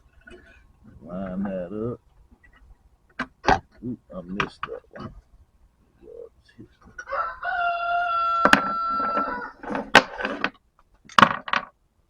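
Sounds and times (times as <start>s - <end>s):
rooster crowing: 7.0s - 9.7s.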